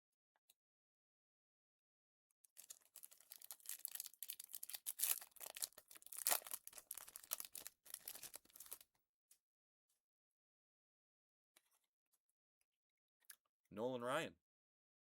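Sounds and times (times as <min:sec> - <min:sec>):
wrapper being torn and crinkled: 0:02.6 - 0:08.8.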